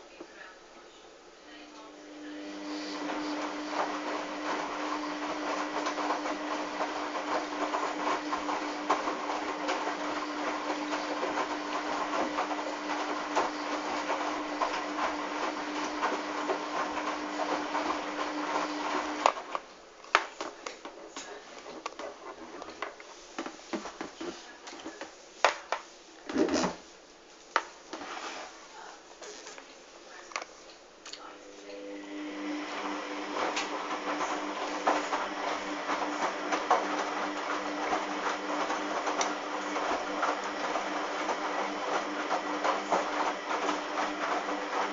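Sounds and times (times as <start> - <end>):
washing machine running: 1.7 - 20.0, 31.3 - 44.9.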